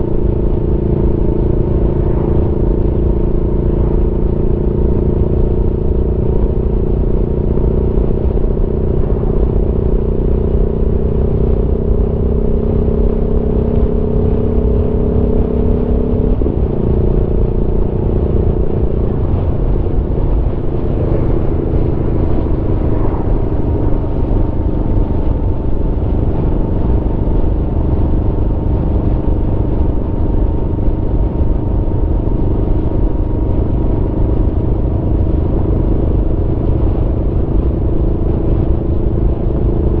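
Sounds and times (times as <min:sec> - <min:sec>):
motorcycle engine cruising: 0:00.0 - 0:40.0
wind and road noise: 0:00.0 - 0:40.0.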